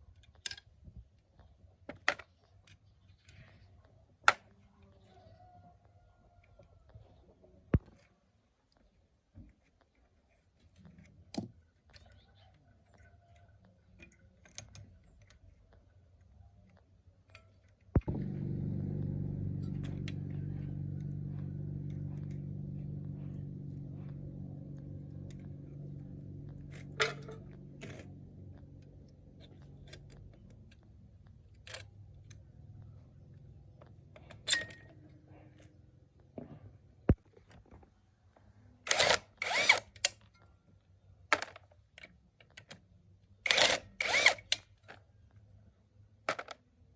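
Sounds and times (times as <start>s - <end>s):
low hum: 18.0s - 34.2s.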